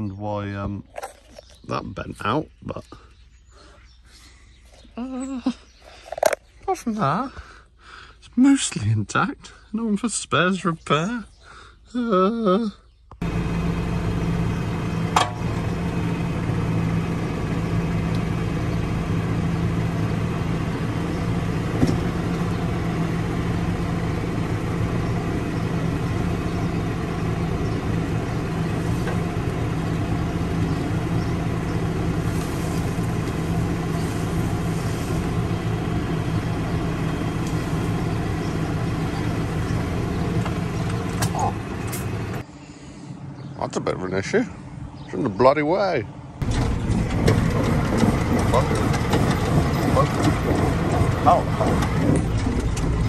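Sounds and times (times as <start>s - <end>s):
tractor diesel engine running: 13.2s - 43.5s, 44.7s - 53.0s.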